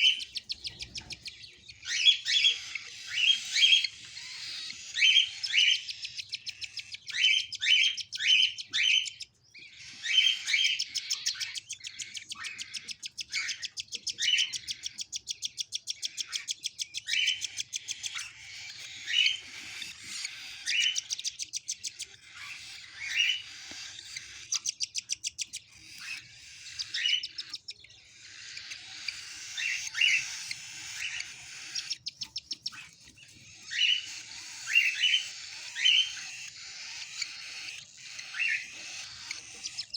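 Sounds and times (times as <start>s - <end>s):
chick buzzing begging calls: 0.0s - 39.9s
cockatiel chirps: 0.0s - 39.9s.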